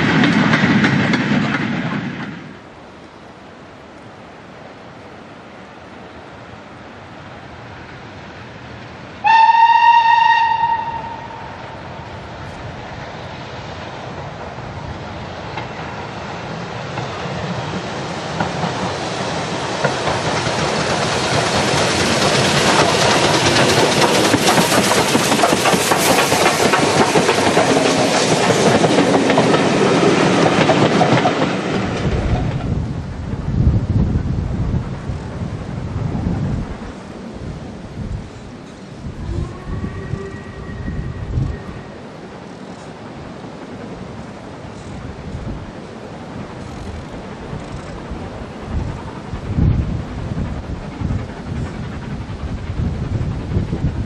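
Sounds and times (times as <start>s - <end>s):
train passing with rail clatter: 0.0s - 54.0s
steam locomotive whistle: 9.2s - 11.8s, 39.2s - 42.2s.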